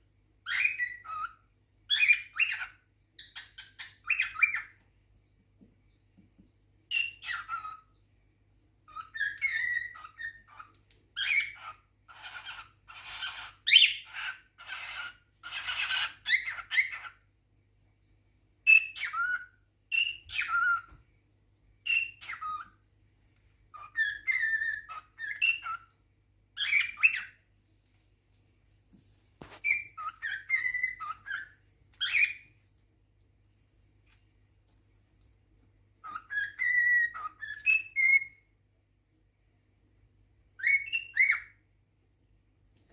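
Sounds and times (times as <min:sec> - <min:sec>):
cockatiel chirps and whistles: 0:00.4 - 0:04.8, 0:06.9 - 0:08.0, 0:08.8 - 0:17.3, 0:18.6 - 0:21.0, 0:21.8 - 0:22.8, 0:23.7 - 0:26.0, 0:26.6 - 0:27.4, 0:29.4 - 0:32.6, 0:36.0 - 0:38.5, 0:40.6 - 0:41.6.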